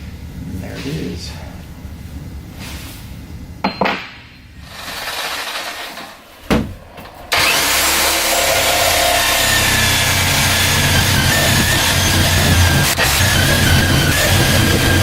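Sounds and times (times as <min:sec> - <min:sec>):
power saw cutting: 0:04.6 - 0:06.3, 0:07.3 - 0:15.0
knocks and clunks on boat fittings: 0:06.5 - 0:07.1.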